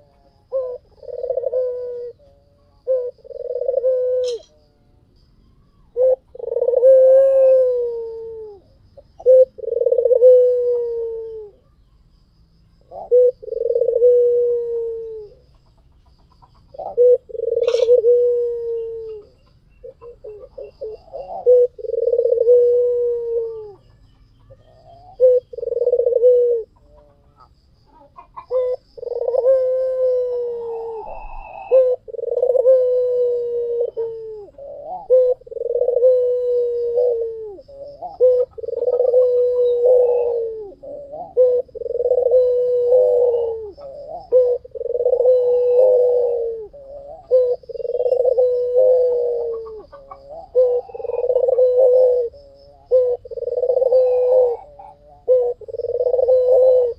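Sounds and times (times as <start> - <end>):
dove cooing: 0.0 - 4.6, 5.6 - 11.7, 12.8 - 56.9.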